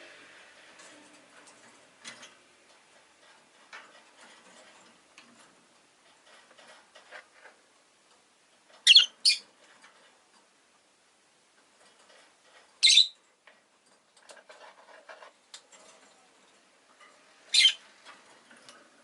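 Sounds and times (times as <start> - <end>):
lovebird squeaky chirps: 8.8 - 9.4, 12.8 - 13.2, 17.5 - 17.8.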